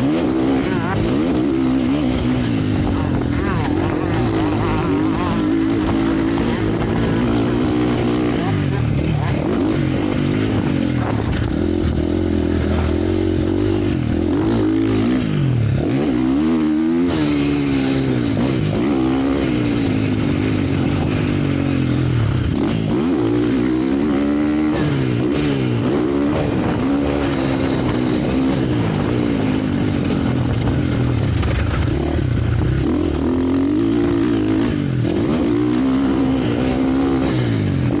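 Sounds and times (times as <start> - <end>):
motorcycle engines revving: 0.0 - 38.0.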